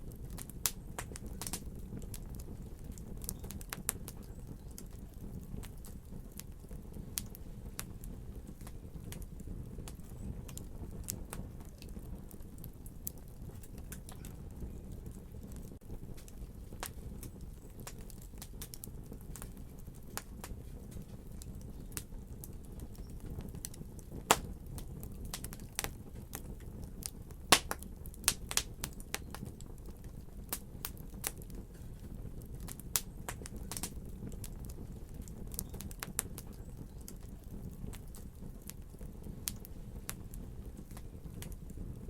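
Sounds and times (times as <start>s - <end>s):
fire crackling and popping: 0.0s - 42.0s
low rumble of flames: 0.0s - 42.0s.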